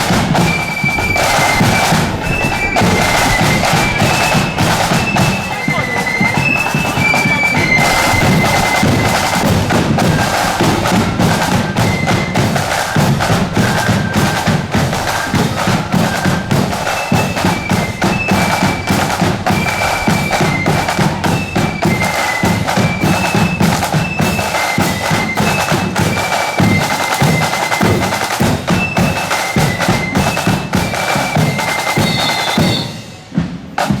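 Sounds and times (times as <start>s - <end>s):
bass drum beats: 0.0s - 22.0s
marching band playing: 0.0s - 34.0s
snare drum rolls: 0.0s - 34.0s.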